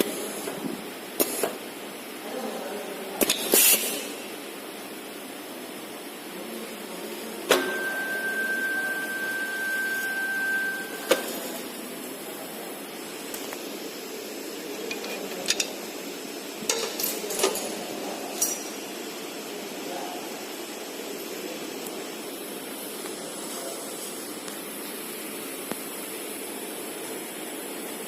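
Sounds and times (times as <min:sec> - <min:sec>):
steady background hiss: 0:00.0 - 0:28.0
soldering machine high tone: 0:07.5 - 0:12.5.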